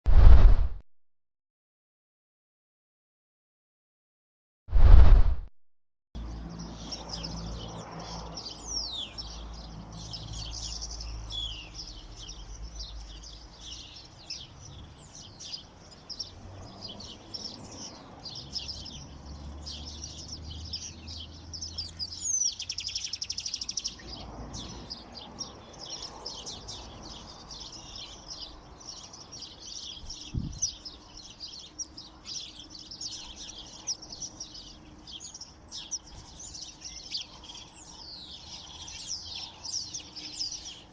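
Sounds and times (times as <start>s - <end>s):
low rumble: 0.1s - 0.8s, 4.7s - 5.5s
songbirds chirping and twittering: 6.2s - 40.9s.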